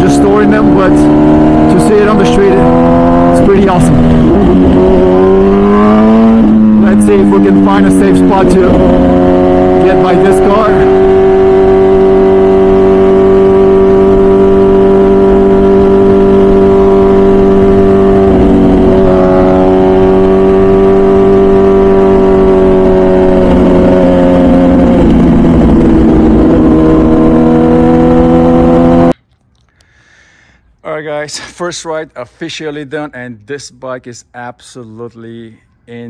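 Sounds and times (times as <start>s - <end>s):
motorcycle engine running hard: 0.0s - 29.2s.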